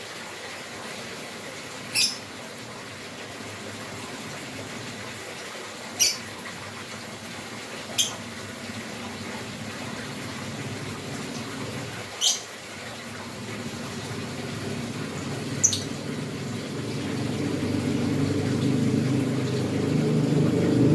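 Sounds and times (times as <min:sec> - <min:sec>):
bird chirping high-pitched: 0:01.9 - 0:02.3, 0:06.0 - 0:06.3, 0:07.9 - 0:08.2, 0:12.2 - 0:12.5, 0:15.1 - 0:17.5.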